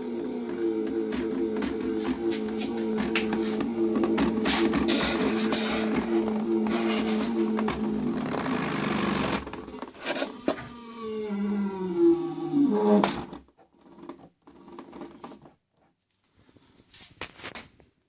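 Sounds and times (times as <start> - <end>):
electric motor whining down: 0.0 - 13.4.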